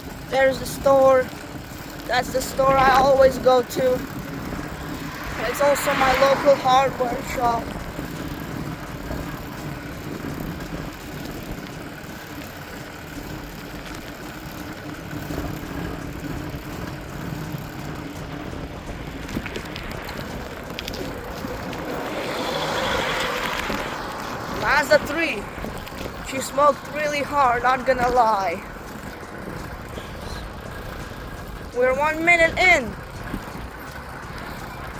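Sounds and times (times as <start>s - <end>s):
wind and road noise: 0.0s - 34.9s
car driving past: 4.0s - 10.3s, 16.8s - 26.9s.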